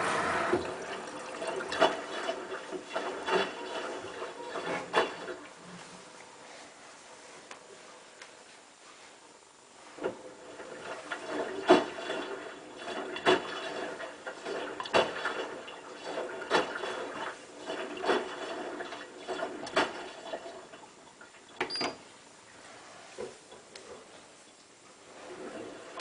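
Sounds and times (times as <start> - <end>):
washing machine drum turning: 0.0 - 5.4.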